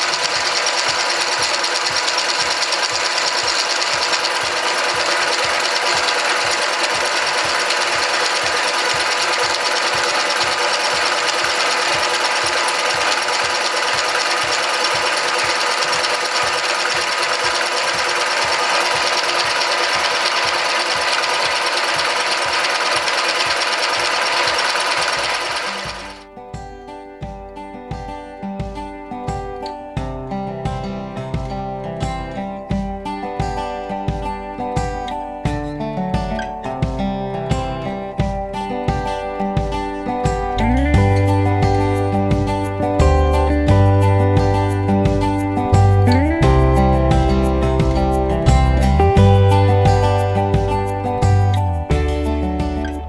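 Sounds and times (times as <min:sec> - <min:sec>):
cutter pulsing: 0:00.0 - 0:26.2
milling machine whining: 0:00.0 - 0:26.2.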